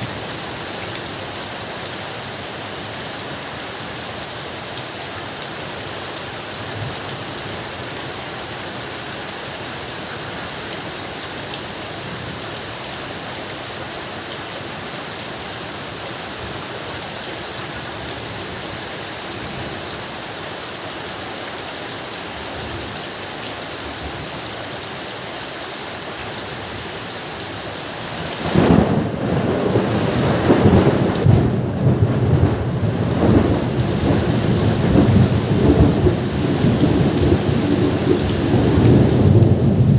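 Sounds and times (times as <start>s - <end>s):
rain falling: 0.0s - 39.9s
thunder rumbling: 28.4s - 39.9s.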